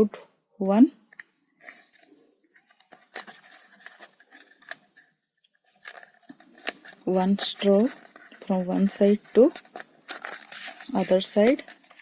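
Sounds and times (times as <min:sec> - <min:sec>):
straw rustling and clicking in cup: 0:05.7 - 0:12.0.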